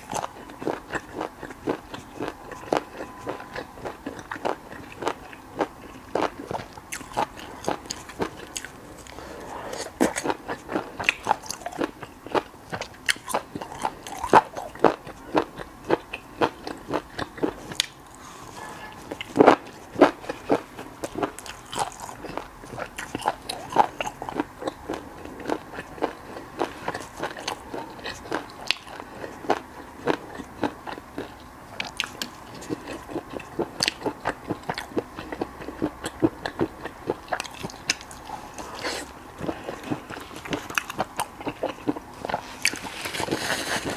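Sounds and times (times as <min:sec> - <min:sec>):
crisp biting and chewing: 0:00.0 - 0:43.9.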